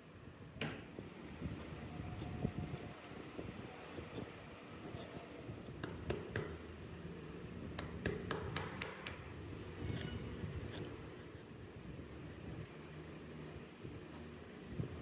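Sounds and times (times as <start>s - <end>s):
carving tools tapping on wood: 5.6s - 6.6s, 7.7s - 9.3s.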